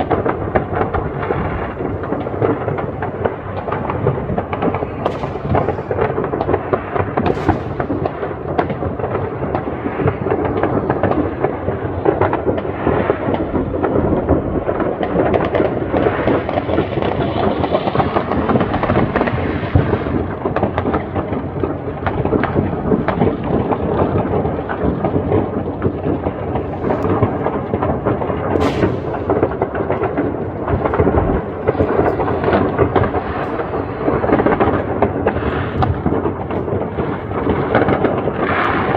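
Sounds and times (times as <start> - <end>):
sharp firework cracks: 0.0 - 11.2, 25.0 - 38.9
fireworks bangs and crackling: 0.0 - 38.9.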